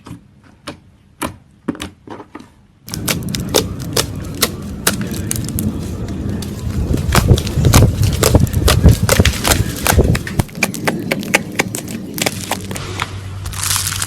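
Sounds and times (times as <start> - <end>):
low rumble: 2.9 - 14.0.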